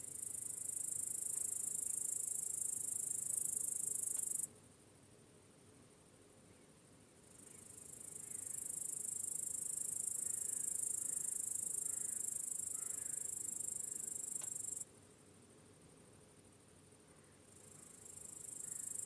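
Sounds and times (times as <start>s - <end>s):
cricket trilling: 0.0s - 4.5s, 7.3s - 14.8s, 17.2s - 19.0s
faint chorus of crickets: 0.0s - 19.0s.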